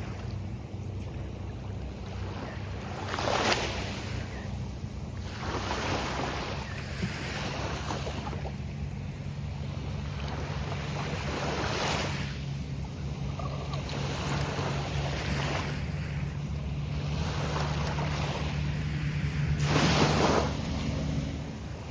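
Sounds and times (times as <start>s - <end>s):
surf breaking on beach: 16.9s - 21.9s.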